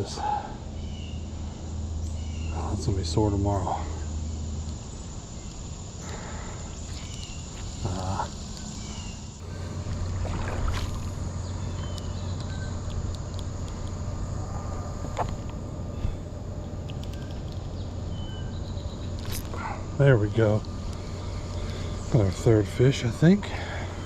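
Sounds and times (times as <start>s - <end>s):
wind rumble: 0.0s - 24.0s
running water: 9.4s - 11.4s.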